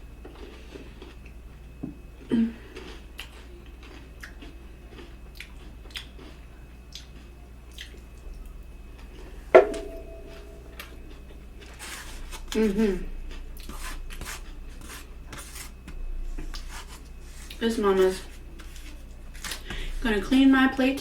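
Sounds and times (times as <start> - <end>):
chewing and wet mouth sounds: 2.7 - 8.5
sharp ringing clink: 9.6 - 11.0.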